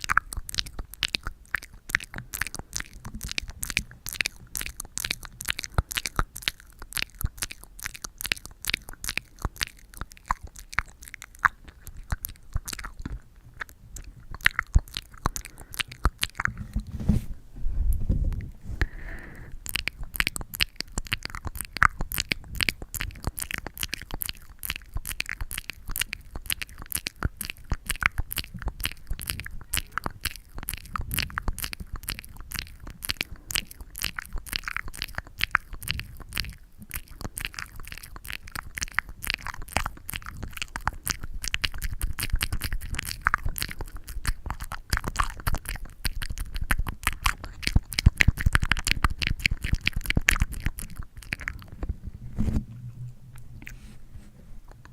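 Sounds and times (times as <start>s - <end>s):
low rumble: 51.6s - 54.7s.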